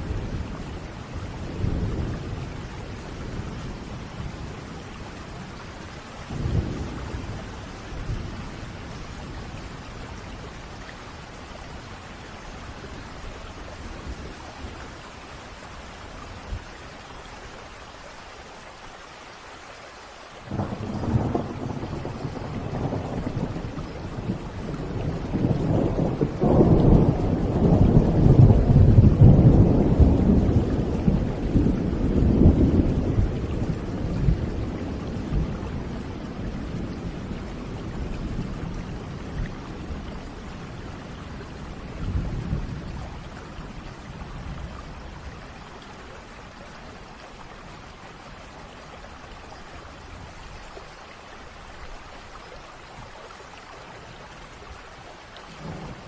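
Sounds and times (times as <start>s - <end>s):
steady rain: 0.0s - 56.0s
thunder rumbling: 20.5s - 45.6s, 55.6s - 56.0s.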